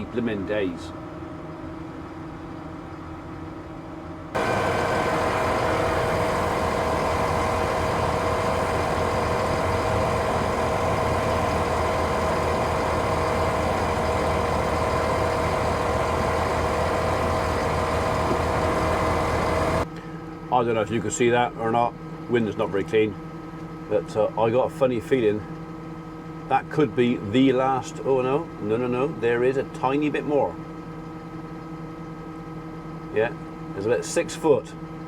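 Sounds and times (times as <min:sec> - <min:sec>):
farm machinery engine running: 0:04.4 - 0:19.9.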